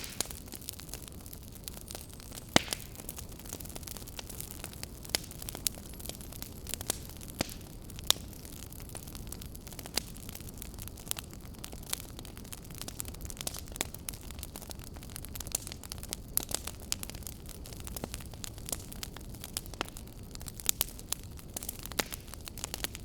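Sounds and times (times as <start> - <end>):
fire low rumble and hiss: 0.0 - 23.0
wood fire pops and snaps: 0.0 - 23.0.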